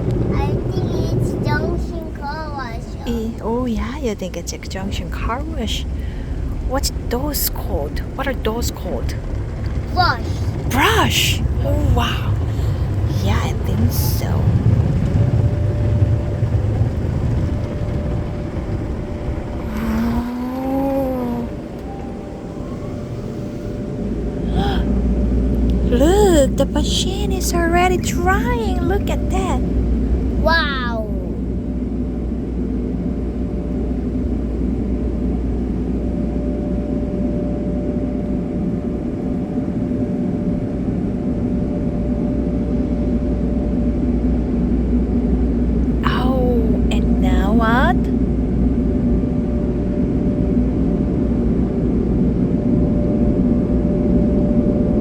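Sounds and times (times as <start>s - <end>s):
faint machine hum: 0.0s - 55.0s
long rising pitched note: 13.9s - 43.7s.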